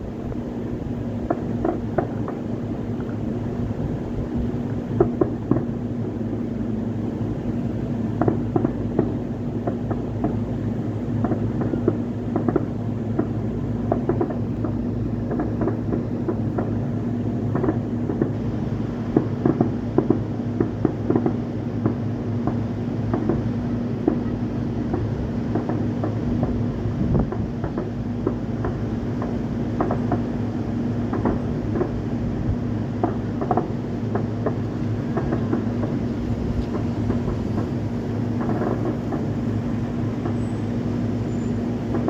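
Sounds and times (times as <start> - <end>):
distant fireworks popping: 0.0 - 42.0
steady low hum: 0.0 - 42.0.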